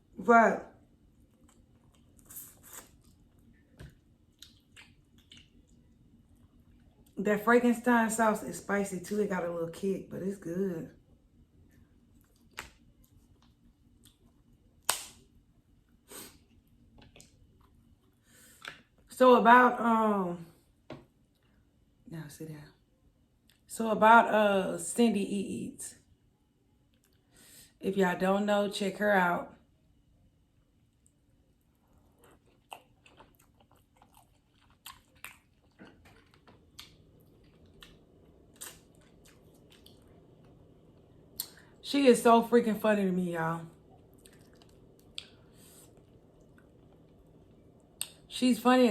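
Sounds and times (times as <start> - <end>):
chewing and biting: 1.2 - 7.1, 31.9 - 41.7, 43.9 - 47.2
eating clicks and cracks: 32.2 - 40.6.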